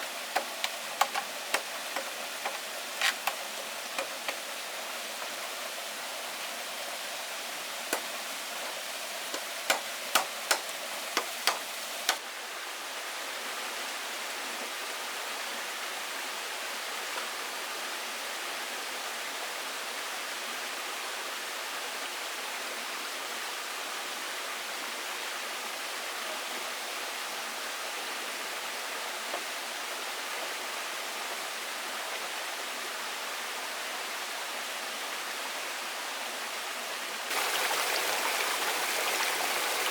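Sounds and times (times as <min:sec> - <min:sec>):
running water: 0:00.0 - 0:18.3, 0:36.6 - 0:39.9
sharp knocks: 0:09.3 - 0:12.2.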